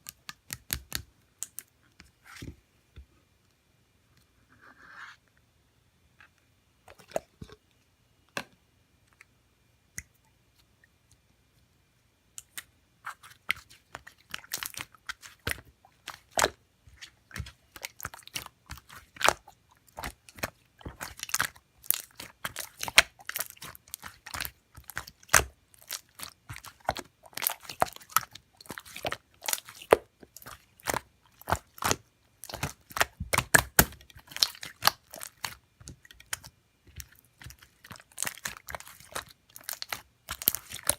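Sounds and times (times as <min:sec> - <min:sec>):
slime squished by hand: 0:12.4 - 0:40.9
sticky popping and clicking: 0:17.4 - 0:40.9.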